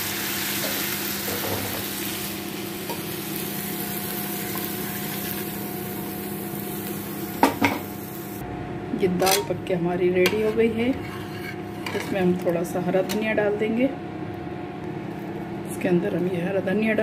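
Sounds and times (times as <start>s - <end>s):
spices sizzling in hot oil: 0.0s - 8.4s.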